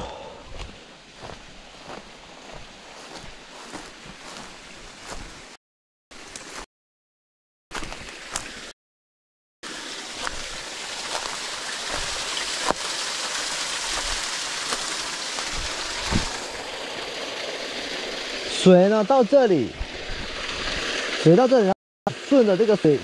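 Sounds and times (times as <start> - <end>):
water trickling over rock: 9.7 - 18.4.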